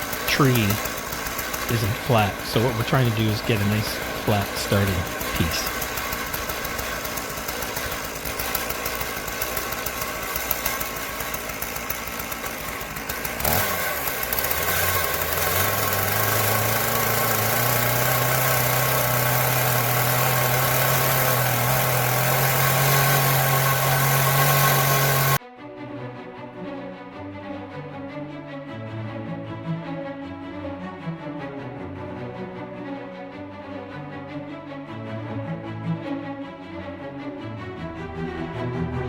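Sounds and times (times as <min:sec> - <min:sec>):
chainsaw cutting through log: 0:00.0 - 0:25.4.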